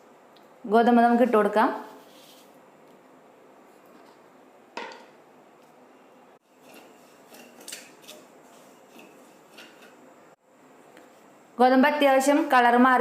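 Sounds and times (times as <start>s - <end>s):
spatula scraping a pan: 6.5s - 10.0s.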